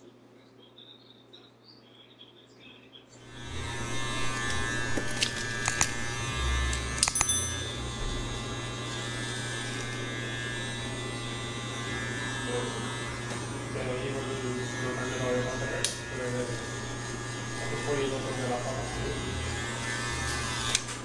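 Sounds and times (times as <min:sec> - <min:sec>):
faint chirping: 0:00.0 - 0:03.2
electric hair clippers buzzing: 0:03.2 - 0:21.0
sharp clicks: 0:06.7 - 0:07.4.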